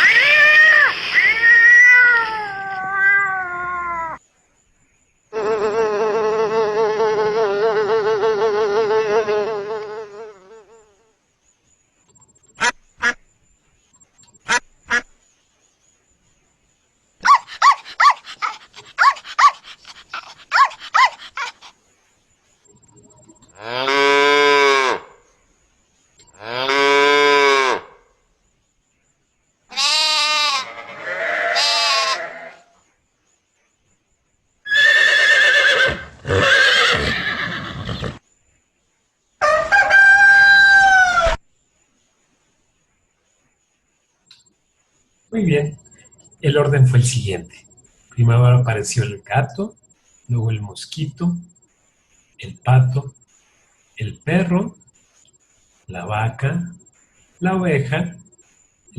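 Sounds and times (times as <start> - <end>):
dog barking: 17.2 - 21.6
sheep bleating: 29.7 - 32.6
horse neighing: 34.7 - 38.2
chicken call: 39.4 - 41.4.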